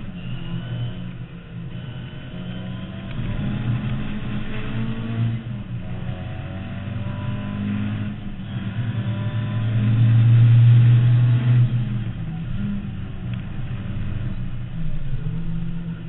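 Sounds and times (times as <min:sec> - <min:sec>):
car engine running hard: 0:00.0 - 0:16.0.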